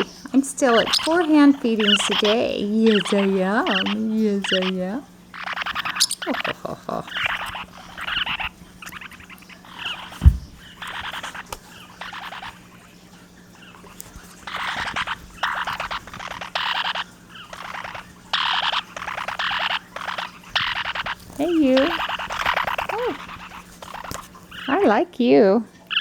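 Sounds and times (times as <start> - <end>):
parrots chattering: 0.0 - 26.0
dull thump: 10.2 - 10.6.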